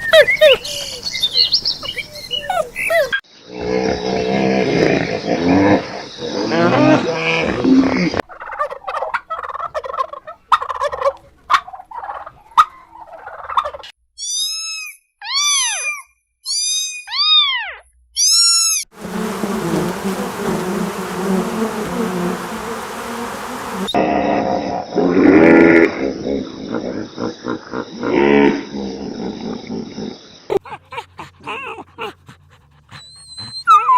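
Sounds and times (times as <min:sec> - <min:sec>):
animal calls rising and falling: 0:18.2 - 0:24.0
steady noise: 0:19.0 - 0:24.0.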